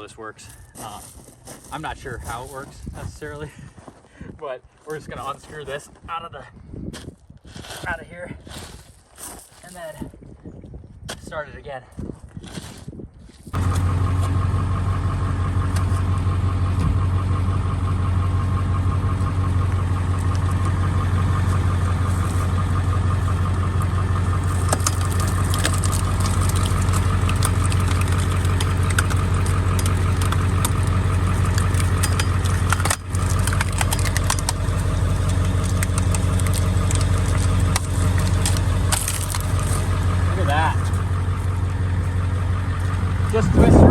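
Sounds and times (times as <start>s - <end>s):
truck engine idling: 13.6s - 43.9s.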